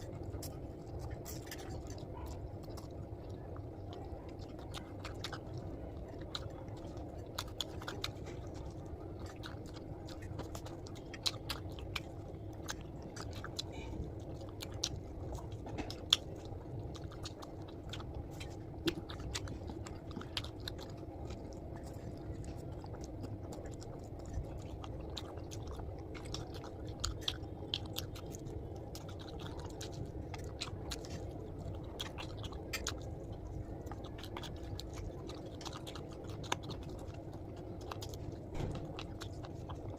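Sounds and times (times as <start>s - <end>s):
faint steady hum: 0.0s - 39.9s
person chewing food: 0.0s - 39.9s.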